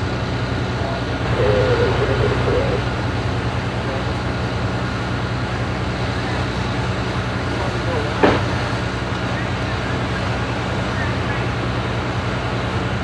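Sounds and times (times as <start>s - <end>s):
diesel engine droning: 0.0s - 13.0s
faint voice: 0.8s - 2.9s.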